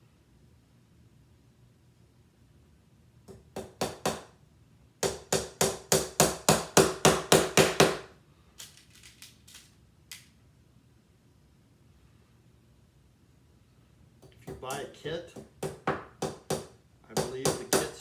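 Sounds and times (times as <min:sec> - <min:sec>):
hammer tapping nails into wood: 0:03.3 - 0:04.3, 0:05.0 - 0:08.1, 0:14.2 - 0:18.0.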